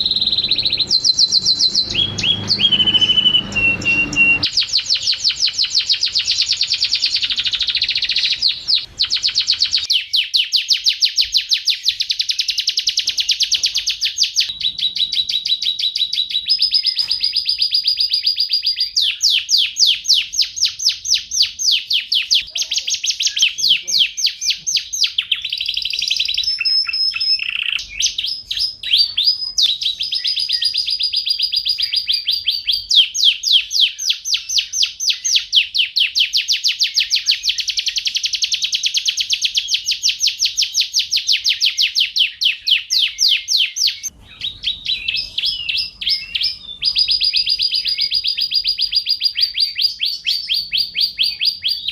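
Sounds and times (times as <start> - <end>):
canary singing trills: 0.0 - 51.9.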